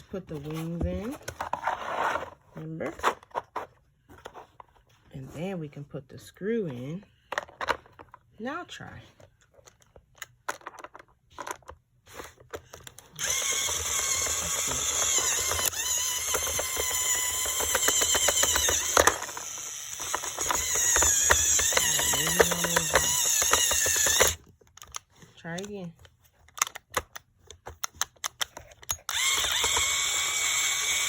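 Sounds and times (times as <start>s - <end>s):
toy drill motor whirring: 12.8s - 25.7s, 27.8s - 31.0s
plastic clicks from handling: 24.5s - 29.8s.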